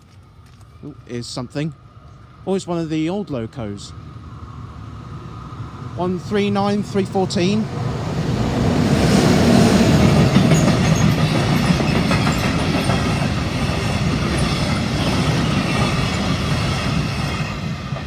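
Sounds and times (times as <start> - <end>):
train wheels rumbling on rails: 0.6 - 18.0
wheels clicking over rail joints: 10.0 - 17.0.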